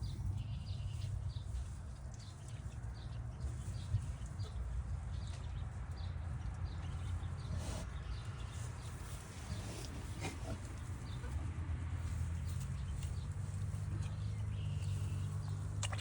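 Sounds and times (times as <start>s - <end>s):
farm animal noises: 0.0s - 16.0s.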